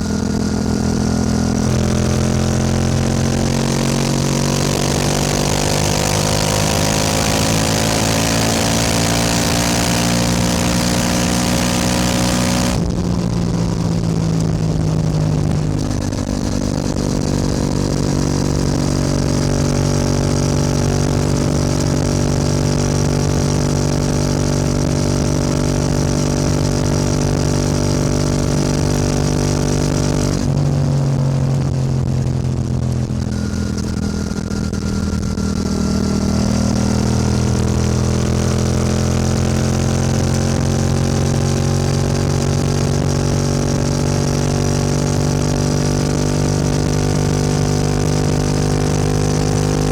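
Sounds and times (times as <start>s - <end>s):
motorcycle engine: 0.0s - 49.9s.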